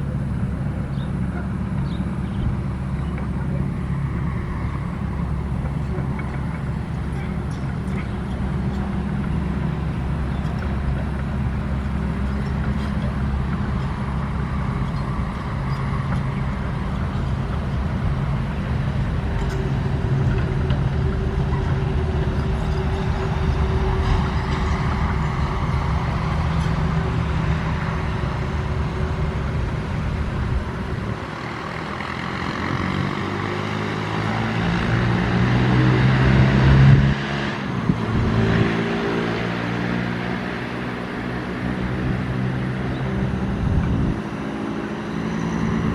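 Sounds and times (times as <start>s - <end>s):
heavy machinery diesel engines: 0.0s - 45.9s
engine revving up: 31.3s - 45.9s.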